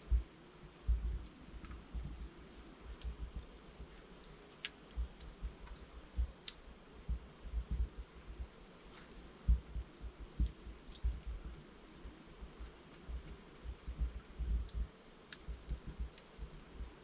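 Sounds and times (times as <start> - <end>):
soft low thumps: 0.0 - 2.4, 5.0 - 6.4, 7.0 - 8.6, 9.4 - 11.6, 12.4 - 15.0
faint hiss of flames: 0.0 - 17.0
logs crackling in fireplace: 0.0 - 17.0.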